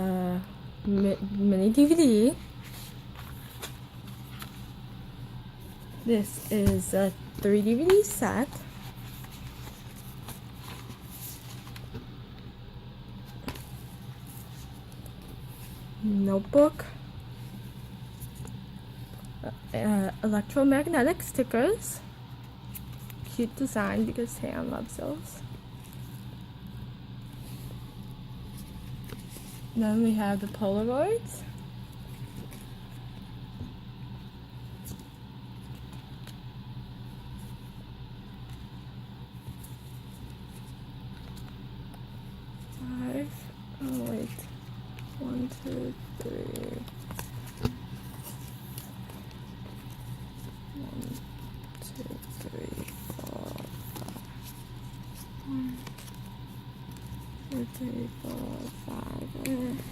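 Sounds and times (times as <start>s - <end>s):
steady low hum: 0.0s - 59.9s
soft rustles and taps: 42.6s - 59.9s.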